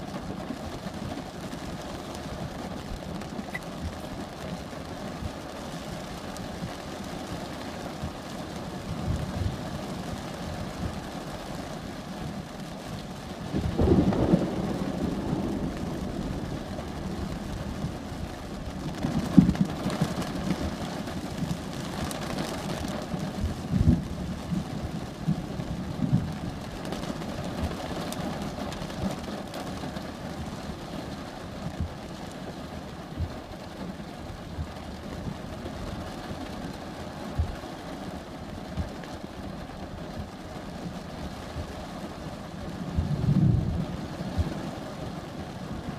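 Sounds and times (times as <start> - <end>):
steady rain: 0.0 - 45.9
thunder rumbling: 13.5 - 21.5, 42.8 - 44.8.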